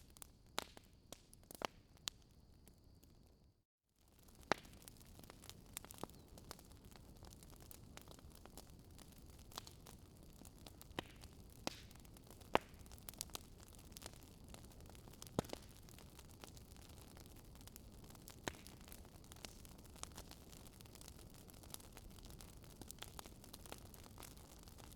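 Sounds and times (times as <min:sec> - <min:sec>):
wood fire crackling: 0:00.0 - 0:02.6, 0:04.1 - 0:24.9.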